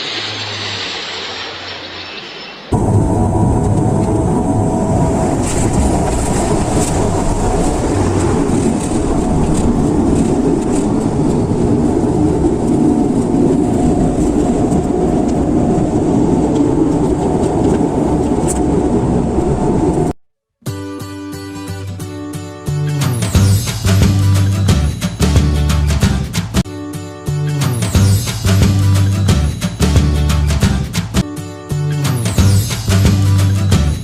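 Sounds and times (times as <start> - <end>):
airliner cabin rumble: 0.0 - 20.2.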